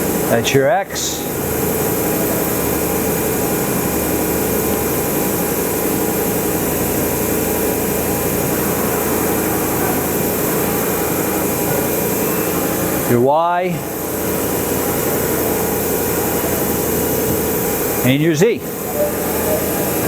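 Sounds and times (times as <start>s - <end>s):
machining center whir and hum: 0.0s - 20.0s.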